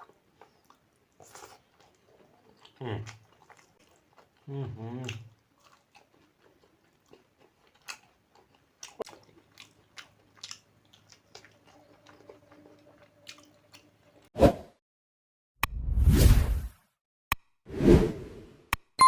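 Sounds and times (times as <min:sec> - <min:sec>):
person chewing food: 0:00.0 - 0:14.1.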